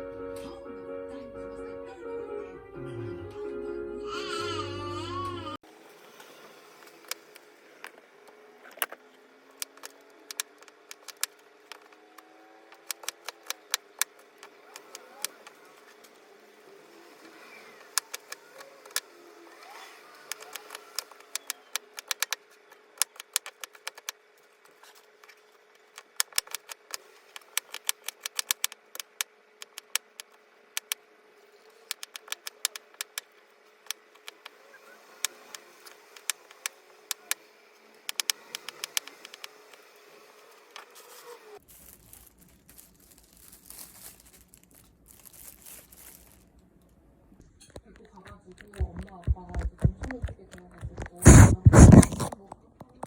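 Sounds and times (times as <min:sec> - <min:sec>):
clicks of small hard objects: 0:06.8 - 0:16.1, 0:17.8 - 0:19.1, 0:20.2 - 0:31.0, 0:31.8 - 0:34.6, 0:35.2 - 0:37.4, 0:38.0 - 0:39.9, 0:40.8 - 0:46.6, 0:47.6 - 0:53.0.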